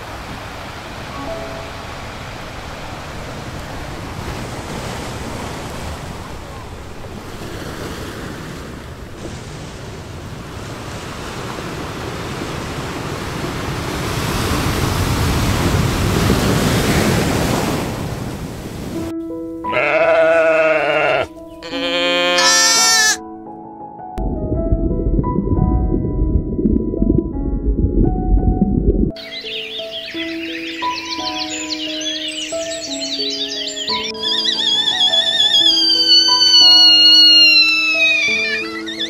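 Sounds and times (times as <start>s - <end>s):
ocean surf: 0.0s - 19.1s, 29.1s - 39.0s
wind noise: 1.8s - 19.1s, 24.2s - 29.1s.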